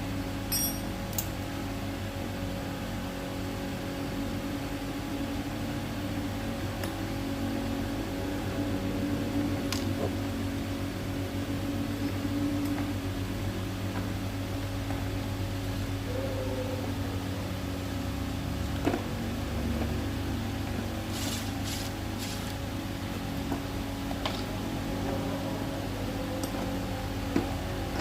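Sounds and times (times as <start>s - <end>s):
low electrical hum: 0.0s - 28.0s
scraping or rustling: 21.1s - 22.6s.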